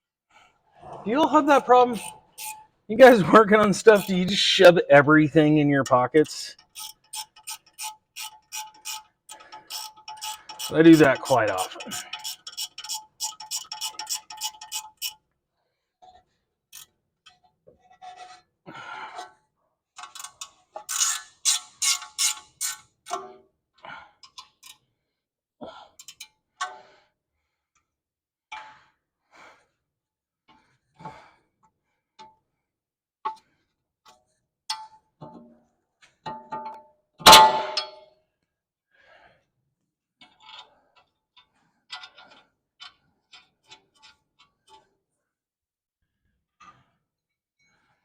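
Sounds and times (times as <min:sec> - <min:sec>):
sharp metallic strokes: 0:01.2 - 0:05.1
clicks and knocks of tools: 0:20.0 - 0:23.4, 0:40.2 - 0:44.9.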